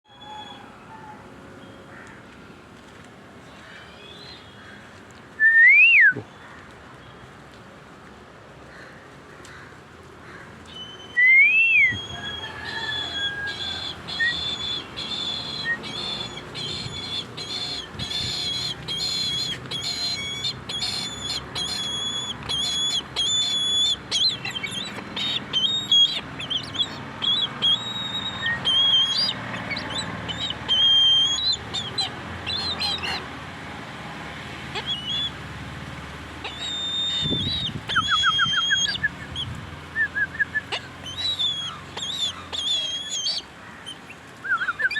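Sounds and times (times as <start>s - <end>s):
bird piping high notes: 10.8s - 33.2s, 34.8s - 35.3s, 36.4s - 39.4s, 40.4s - 43.4s.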